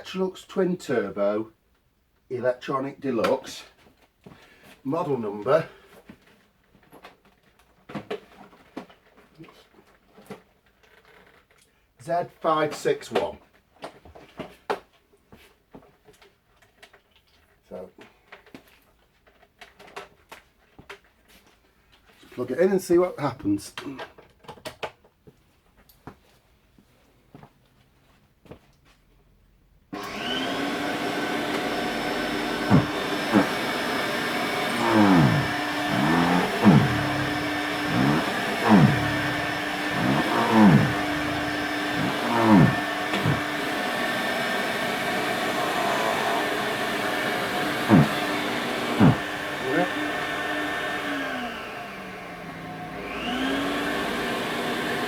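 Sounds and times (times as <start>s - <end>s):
vacuum cleaner whining: 30.0s - 55.0s.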